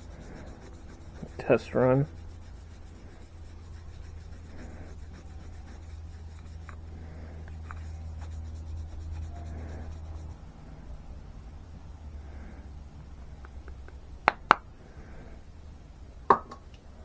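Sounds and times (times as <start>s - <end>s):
scratchy rubbing on leather: 0.0s - 10.4s
steady low hum: 0.0s - 17.0s.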